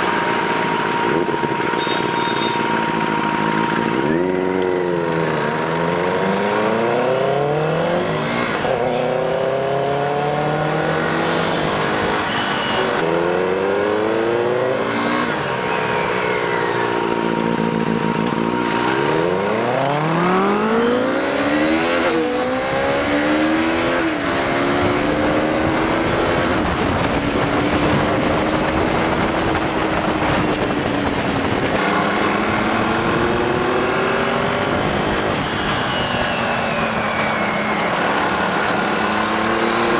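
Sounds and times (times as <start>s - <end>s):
motorcycle engine accelerating: 0.0s - 39.9s
wind rush: 24.5s - 39.9s.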